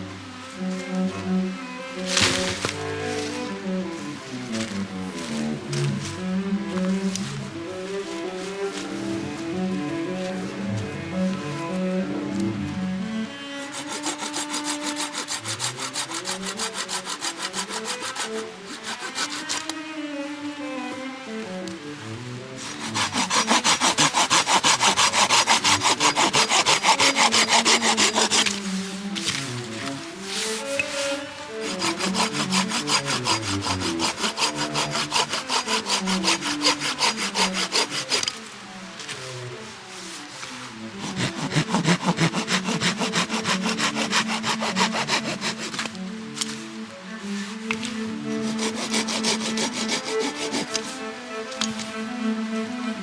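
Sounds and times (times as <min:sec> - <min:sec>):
soft background music: 0:00.0 - 0:53.0
hand saw cutting wood: 0:02.0 - 0:06.1, 0:13.6 - 0:19.8, 0:22.6 - 0:38.4, 0:40.9 - 0:46.5, 0:47.5 - 0:52.0.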